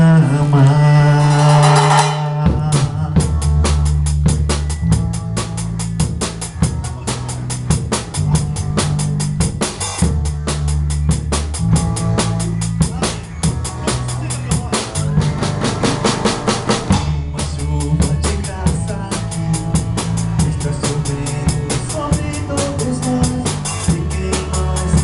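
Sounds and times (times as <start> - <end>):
band playing instrumental: 0.0 - 25.0
drum kit beat: 0.0 - 25.0
held bass notes: 0.0 - 25.0.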